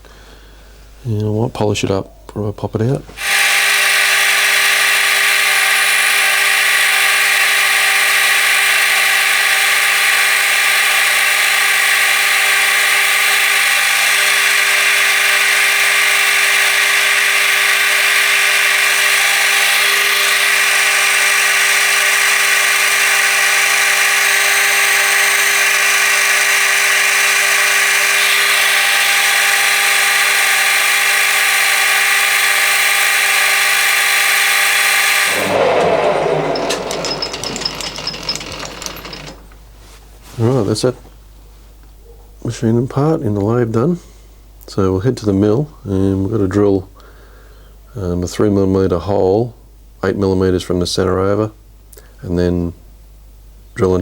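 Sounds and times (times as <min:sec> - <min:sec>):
metal lathe whine: 0:03.2 - 0:39.7.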